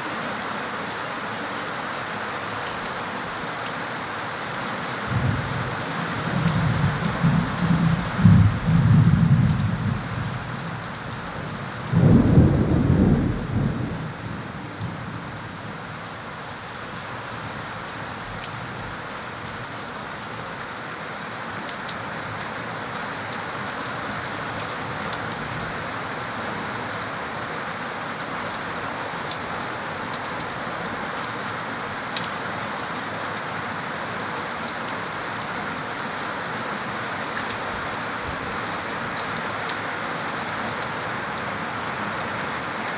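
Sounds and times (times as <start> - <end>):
heavy rain falling: 0.0 - 42.9
thunder rumbling: 5.1 - 5.8, 6.4 - 10.8, 11.9 - 14.5.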